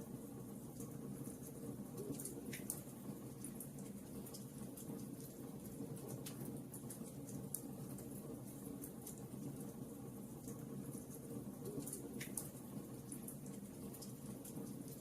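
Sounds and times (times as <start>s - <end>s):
wood fire crackling: 0.3s - 15.0s.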